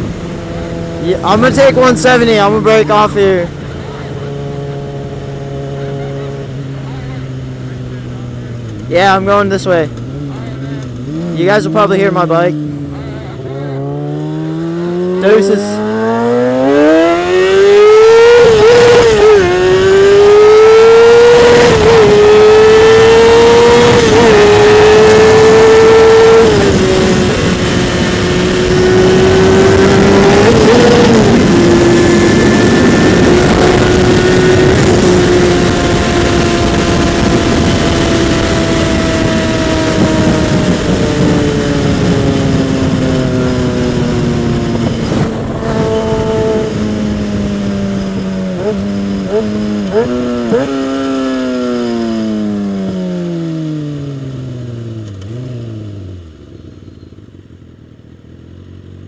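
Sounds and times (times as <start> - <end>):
motorcycle engine accelerating: 0.0 - 59.0
wind rushing over microphone: 13.4 - 53.4.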